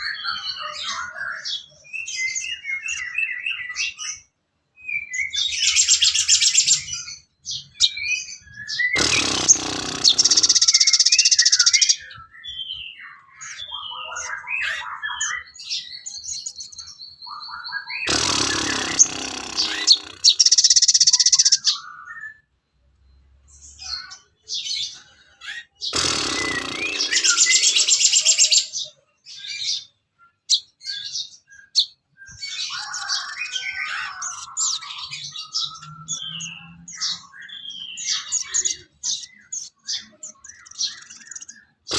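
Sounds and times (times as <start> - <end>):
songbird chirps and trills: 0.0 - 41.9
harsh noisy burst: 9.0 - 11.0, 18.1 - 20.6, 25.9 - 28.2.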